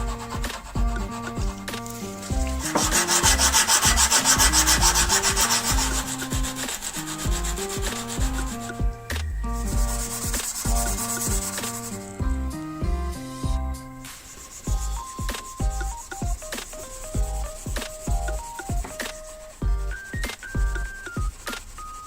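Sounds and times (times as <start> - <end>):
hand sanding strokes: 0.0 - 8.8, 9.6 - 12.2, 14.1 - 22.0
melodic background music: 0.0 - 22.0.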